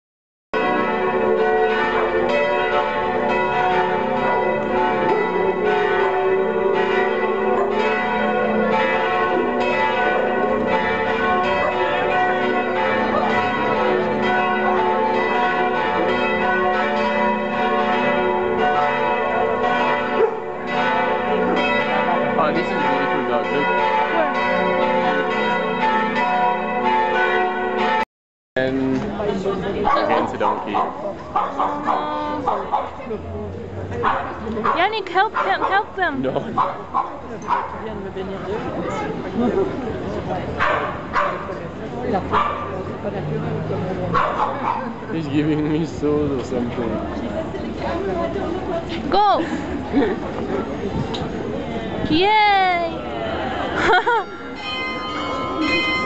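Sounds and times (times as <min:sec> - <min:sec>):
church bells pealing: 0:00.6 - 0:28.0, 0:53.9 - 0:56.0.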